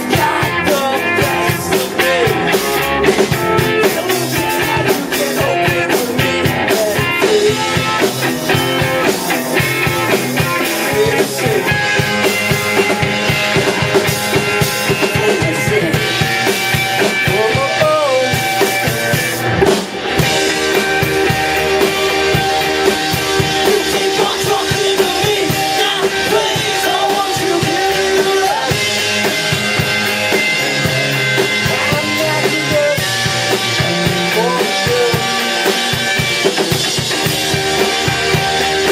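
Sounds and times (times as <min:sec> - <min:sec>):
person singing: 0:00.0 - 0:12.0, 0:14.9 - 0:16.4, 0:17.2 - 0:18.4, 0:21.6 - 0:29.0, 0:30.8 - 0:35.9
drum kit: 0:00.0 - 0:38.9
electric guitar: 0:00.0 - 0:38.9.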